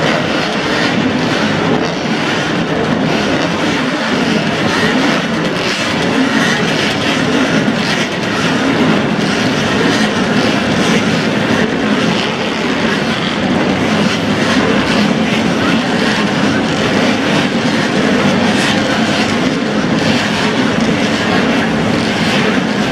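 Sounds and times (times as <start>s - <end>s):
racing motorcycle engines running: 0.0s - 22.9s.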